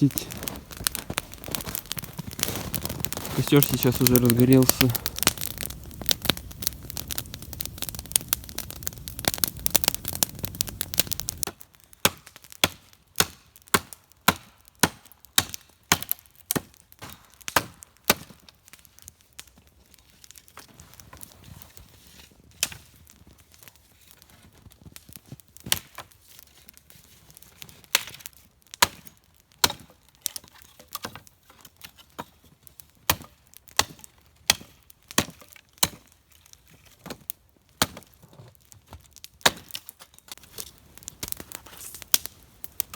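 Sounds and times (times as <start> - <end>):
steady fire rush: 0.0 - 11.5
burning wood popping: 0.0 - 42.9
campfire crackling: 0.0 - 42.9.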